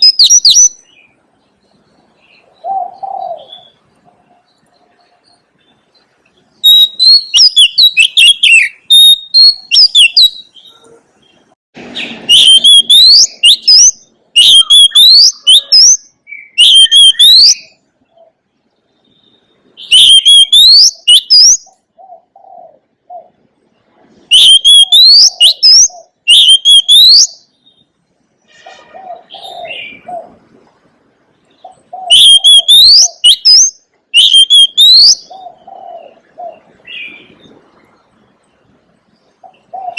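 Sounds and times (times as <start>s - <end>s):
bird singing whistles: 0.0s - 1.1s, 6.6s - 10.8s, 12.0s - 17.8s, 19.1s - 21.8s, 24.3s - 27.9s, 32.0s - 35.3s
soft low bird calls: 0.0s - 39.9s.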